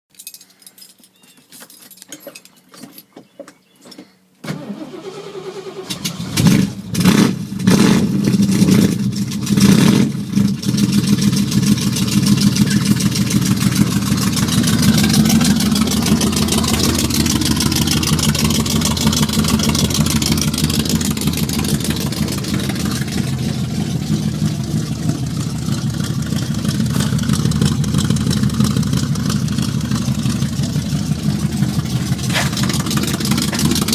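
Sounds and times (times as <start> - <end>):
car engine cranking and starting: 4.4 - 33.9
car engine revving: 4.8 - 33.9
car engine fast idle: 10.2 - 33.9.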